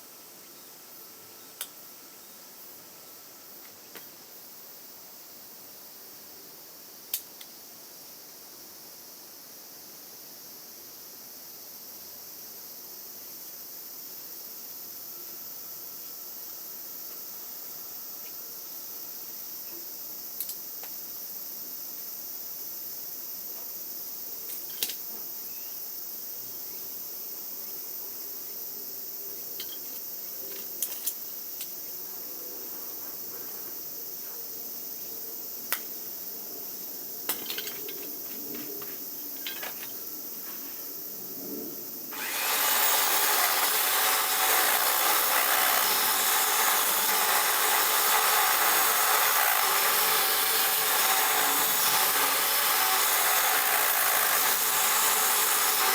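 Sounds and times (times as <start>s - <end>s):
insects chirring: 0.1s - 55.9s
power tool running: 42.1s - 55.9s
hand tools clicking: 42.2s - 55.9s.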